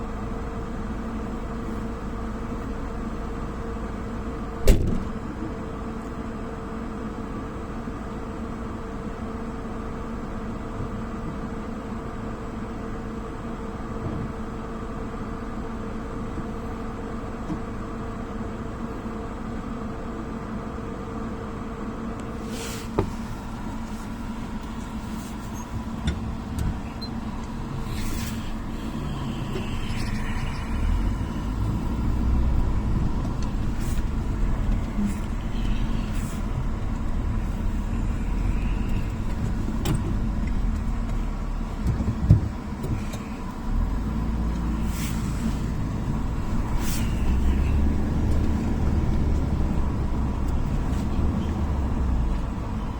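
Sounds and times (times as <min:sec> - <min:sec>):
motor vehicle engine running: 0:00.0 - 0:52.9.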